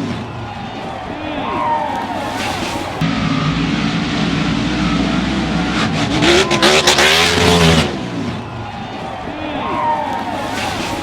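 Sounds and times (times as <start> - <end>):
loud rush of noise: 0.0 - 11.0
truck engine revving hard: 3.0 - 8.4.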